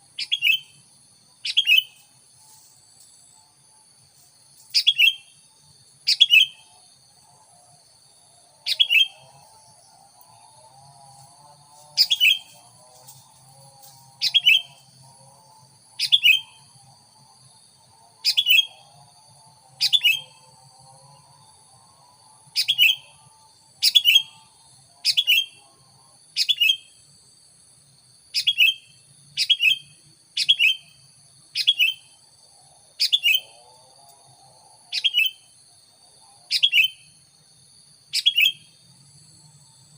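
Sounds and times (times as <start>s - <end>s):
bird chirping: 0.2s - 0.8s, 1.4s - 2.6s, 4.7s - 5.4s, 6.1s - 6.8s, 8.6s - 9.5s, 12.0s - 12.6s, 14.2s - 14.9s, 16.0s - 16.8s, 18.2s - 18.9s, 19.8s - 20.5s, 22.6s - 23.2s, 26.4s - 27.0s, 28.4s - 32.2s, 33.0s - 33.6s, 34.9s - 35.5s, 36.5s - 37.1s, 38.1s - 38.8s.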